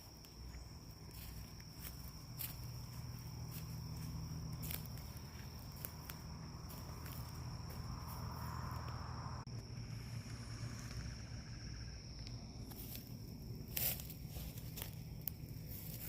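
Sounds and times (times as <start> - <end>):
footsteps crunching on dry ground: 0.0 - 8.9, 12.6 - 16.0
high-pitched insect trill: 0.0 - 16.0.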